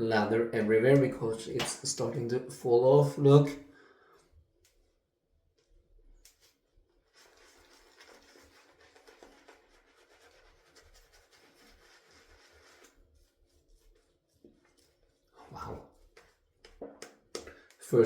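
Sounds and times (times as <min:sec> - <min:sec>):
shaving brush swishing lather: 0:07.0 - 0:18.0.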